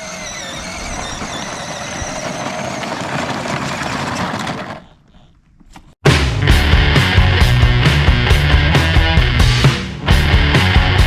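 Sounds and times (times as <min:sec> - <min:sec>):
tractor engine running: 0:00.0 - 0:05.1
loud rock music: 0:06.1 - 0:11.0.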